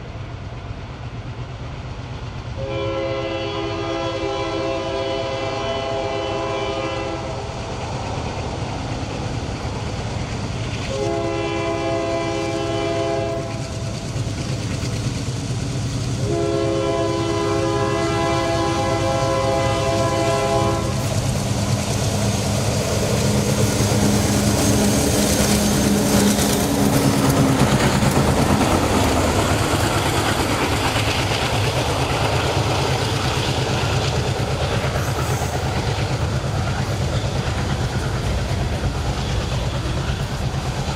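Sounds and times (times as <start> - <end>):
locomotive engine drone: 0.0 - 40.9
rail noise: 0.0 - 40.9
locomotive horn blasts: 2.6 - 7.3, 10.9 - 13.6, 16.2 - 21.0.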